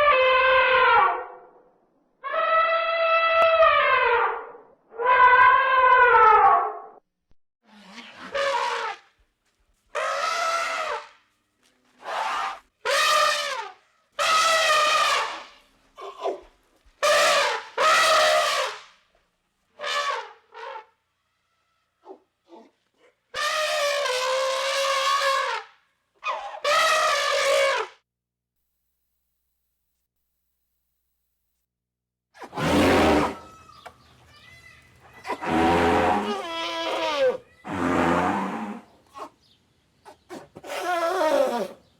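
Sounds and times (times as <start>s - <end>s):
elephant trumpeting: 7.7s - 9.0s, 9.9s - 11.1s, 12.0s - 15.6s, 17.0s - 18.8s, 23.3s - 28.0s, 32.4s - 33.8s, 35.2s - 39.3s, 40.3s - 41.8s.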